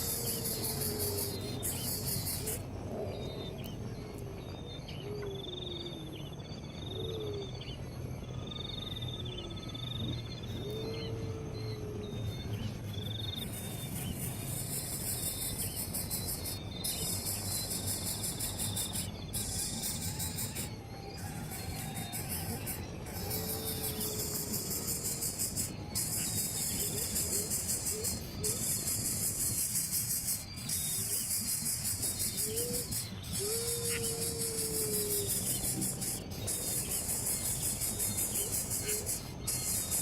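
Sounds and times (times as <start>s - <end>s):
insects shrilling: 0.0s - 2.6s, 13.3s - 40.0s
trilled bird calls: 0.0s - 40.0s.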